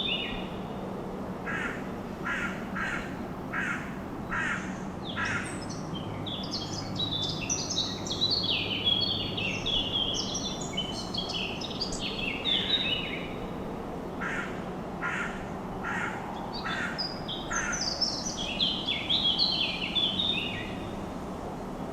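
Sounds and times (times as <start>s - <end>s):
steady background hiss: 0.0s - 21.9s
birds chirping: 1.5s - 13.5s
harsh bird calls: 14.2s - 20.8s.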